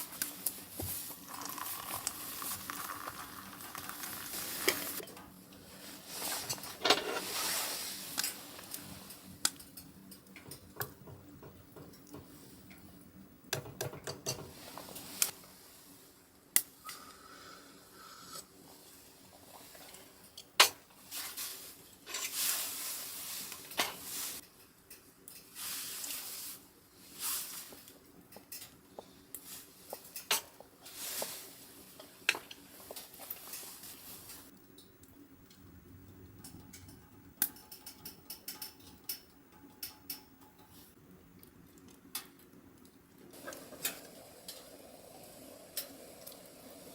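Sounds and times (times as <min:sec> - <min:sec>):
pots and pans clinking: 0:06.4 - 0:07.6, 0:43.4 - 0:44.6.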